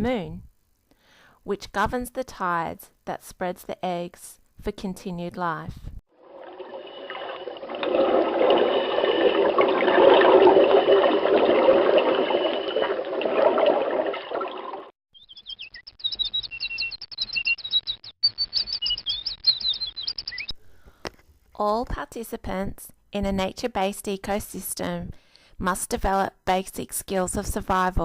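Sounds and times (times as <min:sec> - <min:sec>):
running water rushing: 0:06.2 - 0:14.9
small birds chirping: 0:15.2 - 0:20.5.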